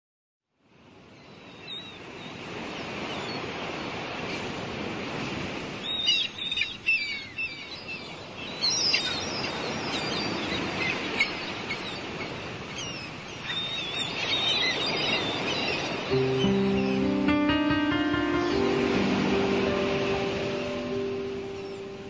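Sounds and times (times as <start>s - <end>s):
birds chirping: 5.8s - 22.0s.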